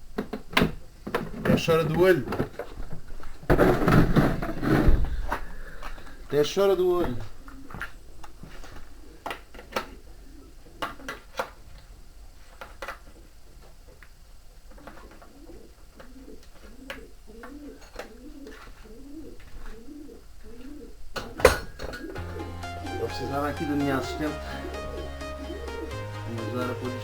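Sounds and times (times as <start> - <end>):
pigeon cooing: 8.7 - 11.3, 14.7 - 27.0.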